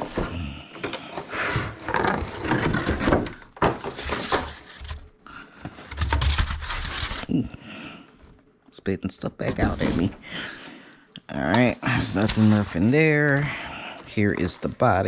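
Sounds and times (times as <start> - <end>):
cardboard packaging rustling and scraping: 0.0 - 7.4, 9.4 - 10.2, 11.9 - 15.0.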